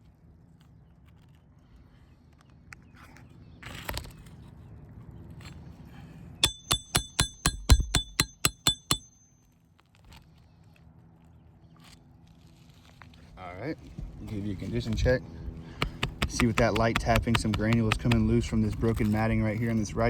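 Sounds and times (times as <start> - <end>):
hammer striking metal: 6.4 - 9.4, 15.8 - 18.2.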